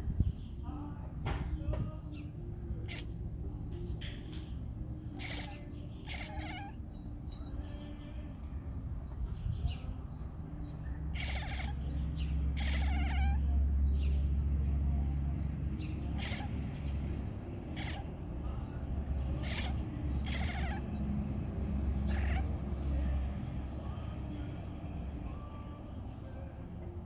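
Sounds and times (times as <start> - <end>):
steady low rumble: 0.0 - 27.0
cat making wavering calls: 2.8 - 3.2, 5.0 - 6.8, 11.1 - 13.6, 15.9 - 18.6, 19.2 - 23.1.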